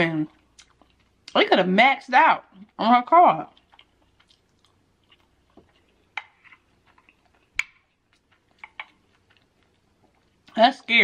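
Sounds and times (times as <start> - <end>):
chewing with mouth clicks: 0.3 - 1.4, 3.5 - 10.6
wooden spoon scraping a plate: 6.2 - 7.1.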